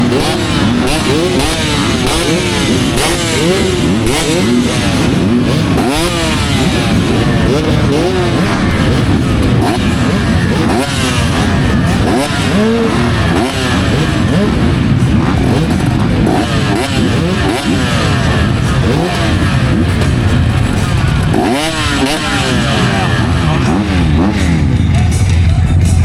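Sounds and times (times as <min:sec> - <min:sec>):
motocross bikes revving: 0:00.0 - 0:26.0.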